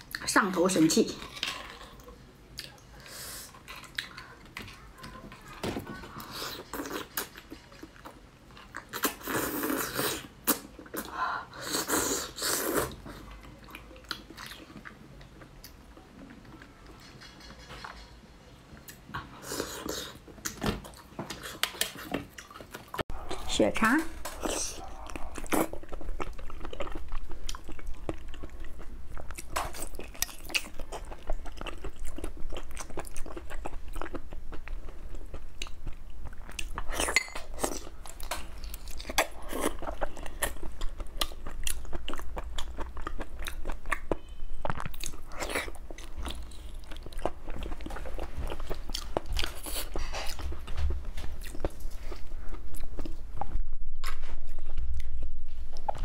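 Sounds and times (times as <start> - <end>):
lip and teeth clicks: 16.5 - 18.2
close-up chewing and biting: 18.8 - 23.5, 24.2 - 56.0.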